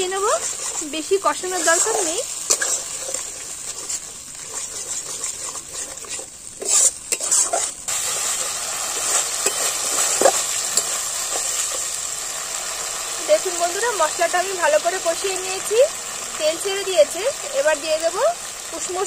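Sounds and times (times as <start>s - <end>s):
metal spatula scraping pan: 0.0s - 11.9s
spice mixture sizzling in pan: 0.0s - 19.0s.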